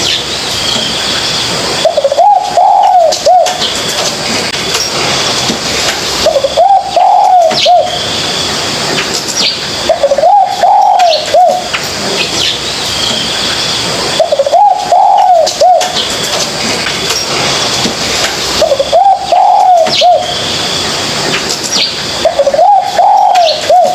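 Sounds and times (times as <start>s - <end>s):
dove cooing: 1.8s - 3.7s, 6.2s - 8.0s, 9.9s - 11.7s, 14.1s - 16.1s, 18.6s - 20.4s, 22.2s - 23.9s.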